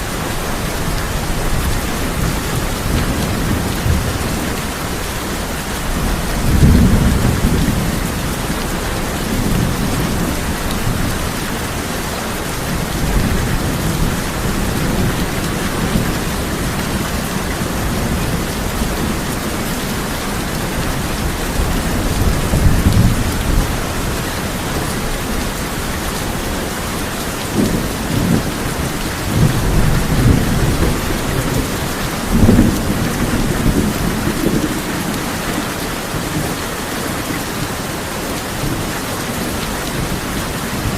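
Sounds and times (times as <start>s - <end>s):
heavy rain on a tin roof: 0.0s - 40.9s
low thunder rolls: 5.8s - 11.4s.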